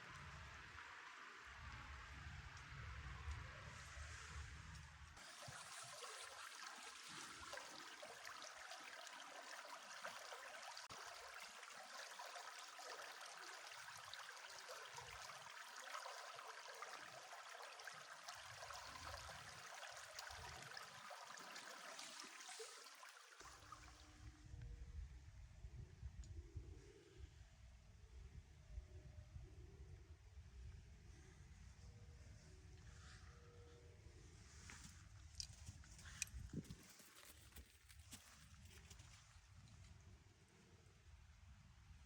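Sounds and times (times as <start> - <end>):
river flowing: 5.2 - 24.0.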